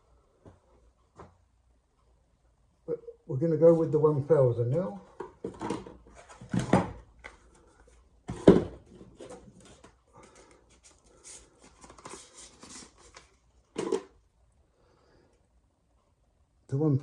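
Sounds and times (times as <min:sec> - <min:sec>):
tools set down on bench: 0:13.7 - 0:14.1.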